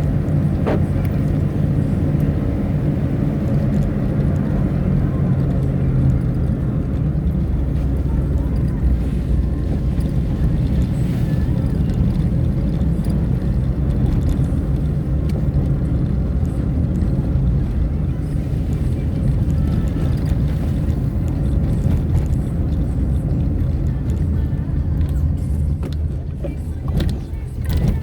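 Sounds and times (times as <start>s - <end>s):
engine and road rumble: 0.0s - 28.0s.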